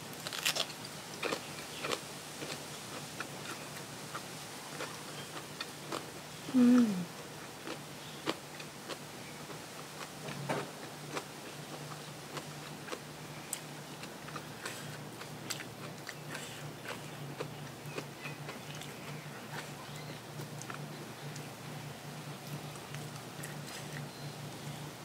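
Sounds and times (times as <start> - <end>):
faint low hum: 0.0 - 25.0
person eating crunchy food: 0.1 - 7.0, 7.6 - 9.0, 11.1 - 21.5.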